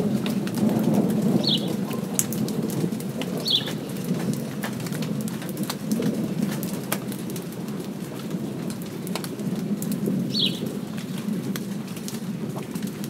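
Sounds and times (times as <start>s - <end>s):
light rain falling: 0.0s - 13.0s
bird chirp: 1.4s - 1.8s, 3.4s - 3.8s, 10.3s - 10.7s.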